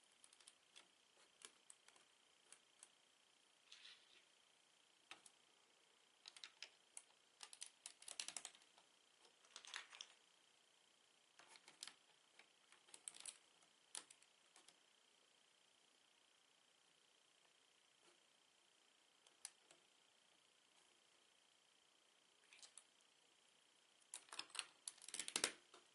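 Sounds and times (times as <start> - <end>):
plastic bricks clicking and rattling: 24.2 - 25.6.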